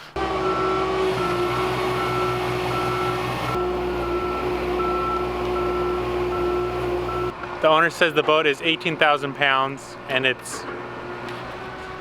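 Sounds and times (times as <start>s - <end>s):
engine running: 0.0s - 7.4s
machine warning beeper: 0.4s - 7.3s.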